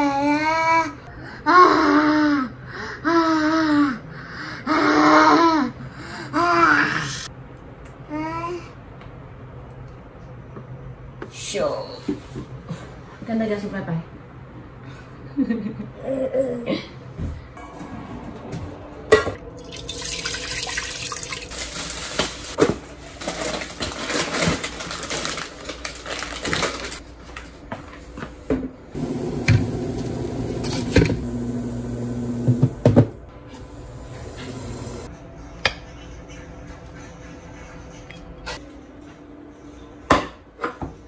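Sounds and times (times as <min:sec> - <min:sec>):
water running from a tap: 0:19.6 - 0:21.7, 0:33.7 - 0:35.1
steady humming: 0:29.0 - 0:38.4.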